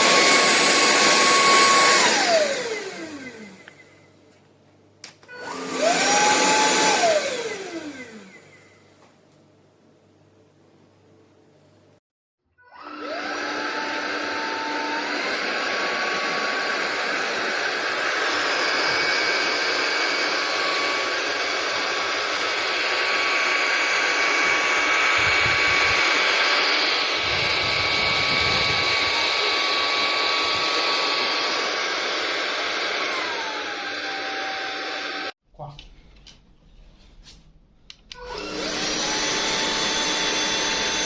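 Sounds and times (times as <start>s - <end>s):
stick vacuum motor whining: 0.0s - 4.1s, 5.0s - 8.8s, 12.8s - 35.4s, 38.1s - 41.0s
loud rush of air: 25.0s - 30.6s.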